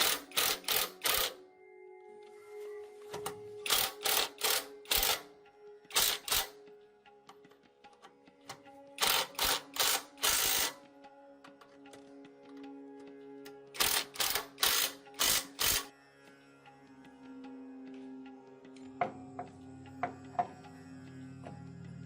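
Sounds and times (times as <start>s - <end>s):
background music: 0.0s - 22.0s.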